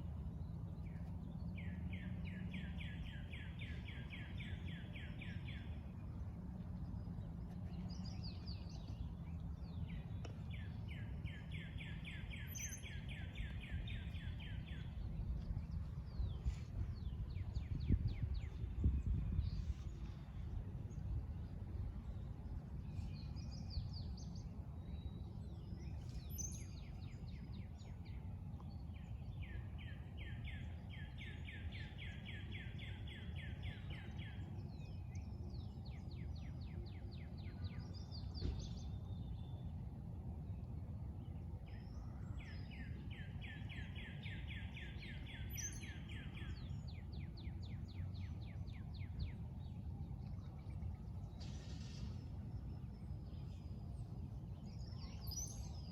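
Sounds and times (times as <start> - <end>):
low background rumble: 0.0 - 55.9
songbirds trilling: 0.0 - 55.9
bird chirps: 9.9 - 15.0.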